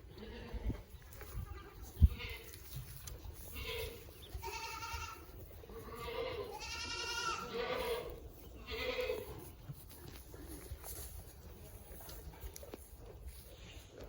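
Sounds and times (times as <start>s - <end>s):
goats bleating: 0.1s - 2.8s, 3.4s - 9.5s.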